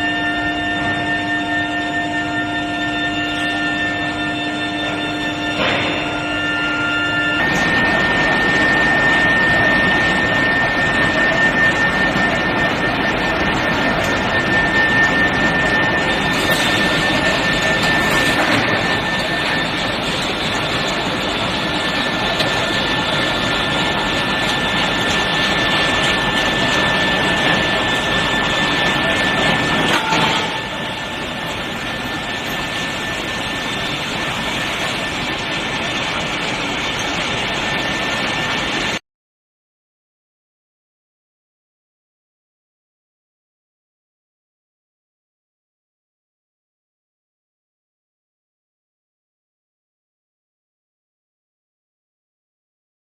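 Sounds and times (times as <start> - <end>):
loud industrial machinery noise: 0.0 - 39.0
thin high whine: 0.0 - 39.0.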